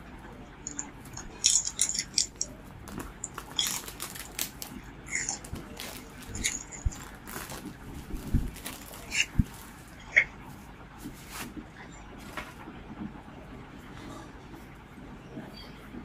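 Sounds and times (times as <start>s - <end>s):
packaging rustling: 0.6s - 10.0s.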